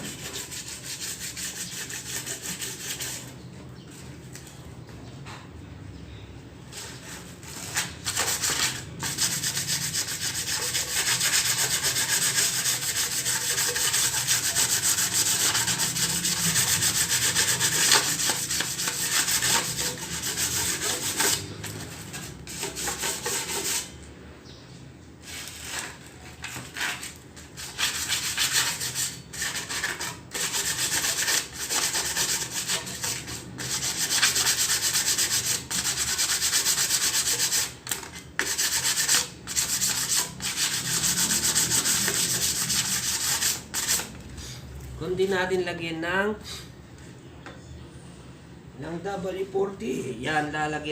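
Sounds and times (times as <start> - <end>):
sandpaper scratching metal: 0.0 - 3.4, 6.7 - 23.9, 25.2 - 44.1.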